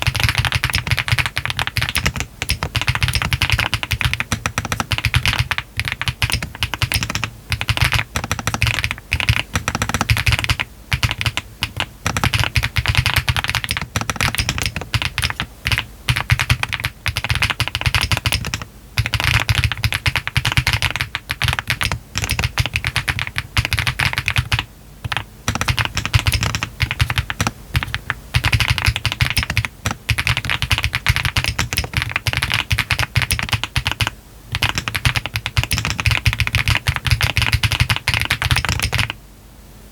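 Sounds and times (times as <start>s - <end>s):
typing on a mechanical keyboard: 0.0s - 39.2s.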